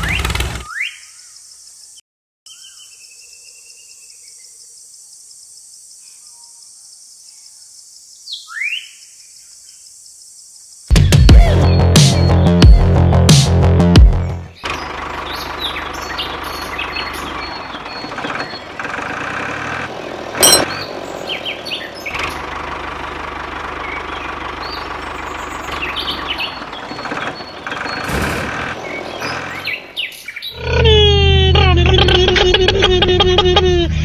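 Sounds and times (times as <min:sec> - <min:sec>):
birds chirping: 0:14.6 - 0:18.9, 0:20.4 - 0:22.5, 0:23.7 - 0:28.1, 0:28.7 - 0:30.7.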